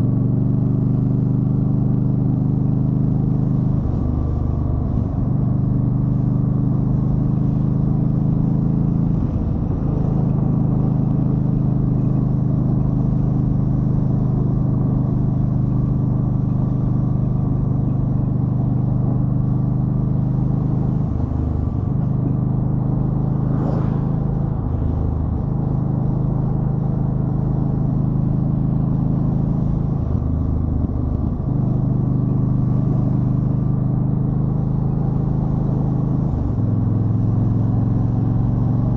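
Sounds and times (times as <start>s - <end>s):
motorcycle engine running: 0.0s - 38.9s
short sharp sound: 23.1s - 25.9s.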